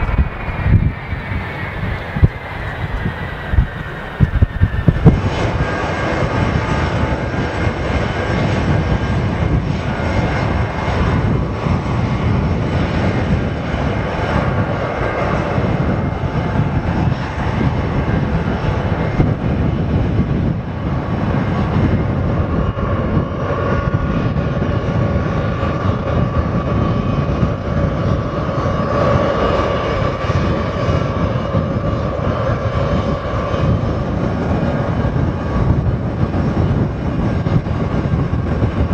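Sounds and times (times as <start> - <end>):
whining tone: 0.0 - 18.6
airliner engines rumbling: 0.0 - 38.9.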